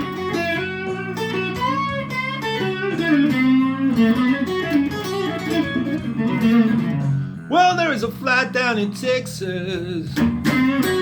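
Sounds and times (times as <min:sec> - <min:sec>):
electric guitar blues fill: 0:00.0 - 0:11.0
person singing: 0:07.4 - 0:11.0.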